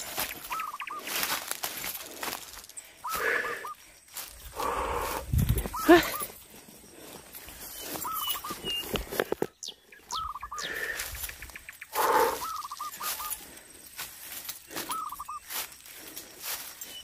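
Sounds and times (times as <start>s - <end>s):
thin whistles: 7.5s - 9.0s, 11.9s - 13.4s, 14.7s - 15.5s, 16.7s - 17.0s.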